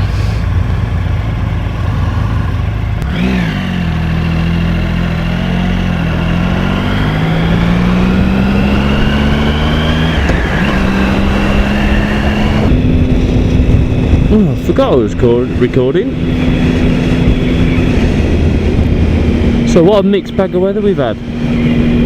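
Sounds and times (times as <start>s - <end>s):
motorcycle engine running: 0.0s - 22.0s
wind rushing: 5.9s - 20.0s.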